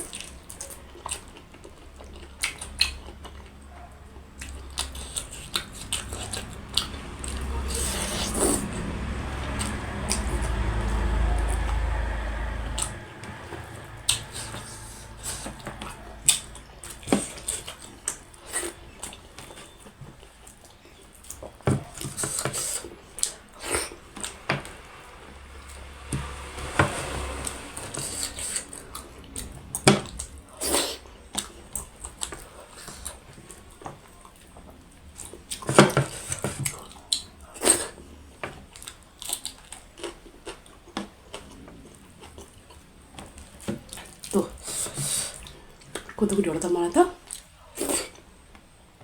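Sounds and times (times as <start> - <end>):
wet chewing and squishing: 0.0 - 13.4, 14.0 - 24.8, 27.0 - 46.3
low rumble: 5.5 - 18.4, 24.1 - 30.5.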